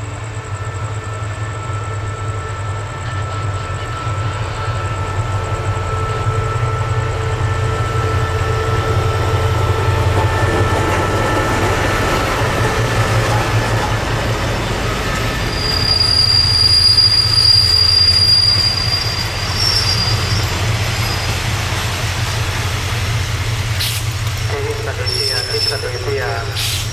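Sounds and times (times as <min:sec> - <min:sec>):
train rumbling on rails: 0:00.0 - 0:26.9
steel wheel squeal: 0:15.1 - 0:21.8.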